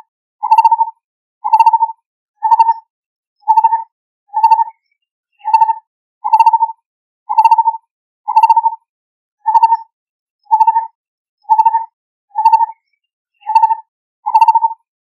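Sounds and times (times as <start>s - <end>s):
bird calling with rippling hoots: 0.4s - 0.8s, 1.4s - 1.8s, 8.3s - 8.8s, 10.5s - 11.8s, 13.4s - 14.9s.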